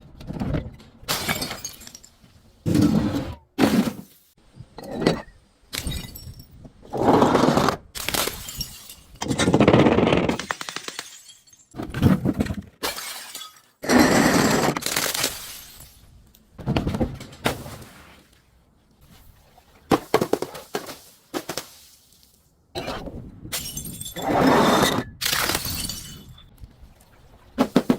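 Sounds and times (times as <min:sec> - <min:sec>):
glass bottles breaking: 0:01.1 - 0:02.2, 0:05.7 - 0:06.6, 0:08.0 - 0:09.5, 0:10.3 - 0:11.8, 0:12.8 - 0:13.8, 0:23.5 - 0:24.4, 0:25.2 - 0:26.5.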